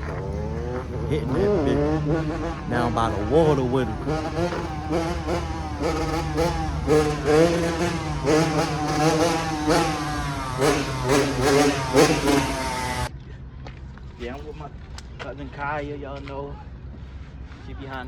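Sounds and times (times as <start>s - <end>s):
dirt bike engines revving: 0.0s - 13.2s.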